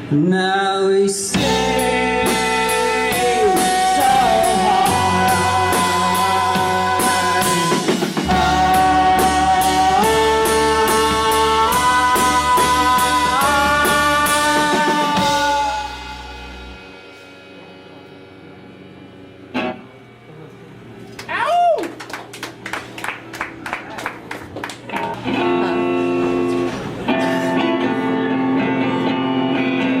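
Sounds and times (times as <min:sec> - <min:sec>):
guitar chords: 0:00.0 - 0:21.2, 0:24.2 - 0:30.0
drums with cymbal beat: 0:01.3 - 0:18.3.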